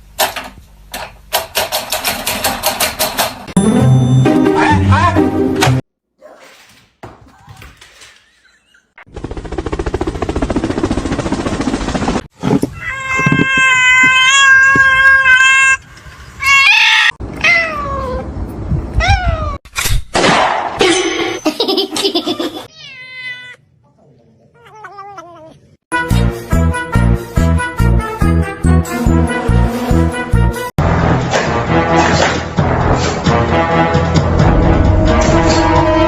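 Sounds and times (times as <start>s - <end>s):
cats meowing: 12.7s - 15.8s, 16.4s - 18.3s, 22.6s - 23.8s, 24.4s - 25.8s.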